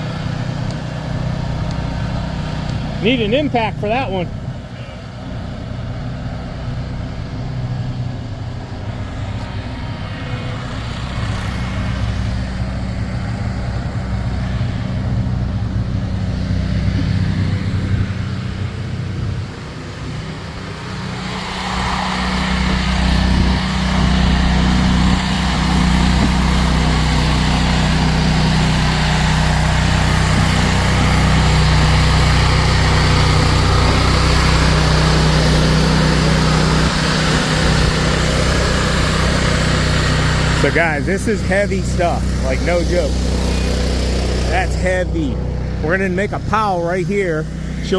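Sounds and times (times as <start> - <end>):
rough noisy grinding: 0.0 - 47.9
snow plow engine running: 0.0 - 47.9.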